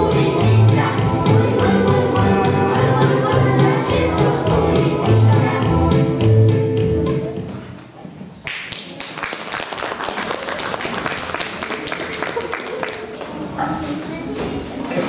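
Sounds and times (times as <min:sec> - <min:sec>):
backing music: 0:00.0 - 0:07.6
audience applauding: 0:08.5 - 0:13.6.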